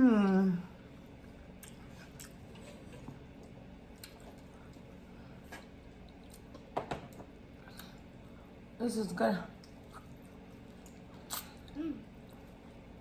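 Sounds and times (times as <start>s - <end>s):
wet chewing and lip smacks: 1.5s - 6.8s, 9.6s - 12.6s.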